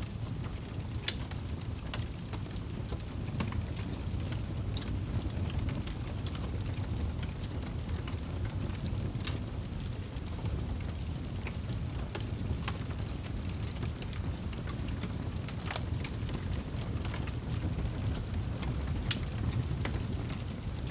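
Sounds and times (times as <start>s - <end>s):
fire crackling and popping: 0.0s - 20.9s
rain: 0.0s - 20.9s.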